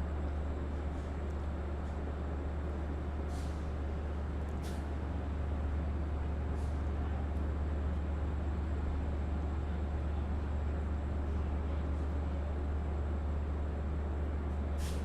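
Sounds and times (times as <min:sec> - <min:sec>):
diesel locomotive idling: 0:00.0 - 0:15.0
air hissing from train brakes: 0:03.3 - 0:03.7, 0:14.8 - 0:15.0.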